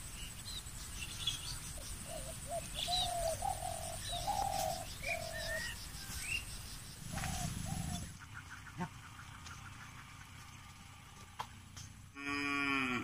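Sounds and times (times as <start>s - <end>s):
bird chirps: 0.0s - 10.6s
bird cooing: 1.8s - 6.2s, 7.1s - 8.2s.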